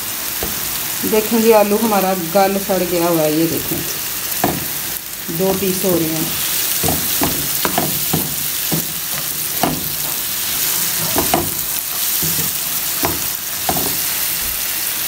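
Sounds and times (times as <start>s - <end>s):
vegetables sizzling in oil: 0.0s - 15.0s
wooden spatula scraping a pan: 6.2s - 14.4s.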